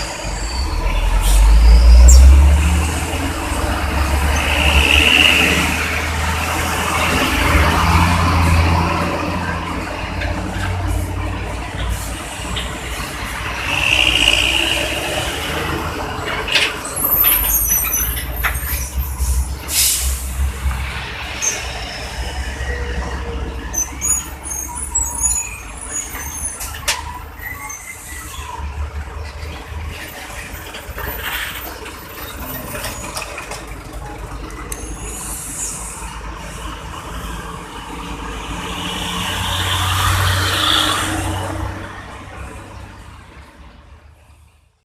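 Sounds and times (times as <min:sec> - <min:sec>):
brakes squealing: 0:00.0 - 0:37.5
truck engine rumble: 0:00.0 - 0:44.8
traffic noise: 0:00.0 - 0:44.9
air brake hisses: 0:19.6 - 0:20.4.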